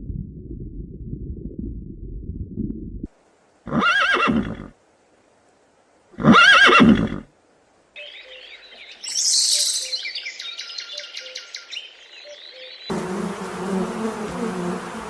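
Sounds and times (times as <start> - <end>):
low rumbling noise: 0.0 - 3.1
horse whinnying: 3.7 - 4.7, 6.2 - 7.3.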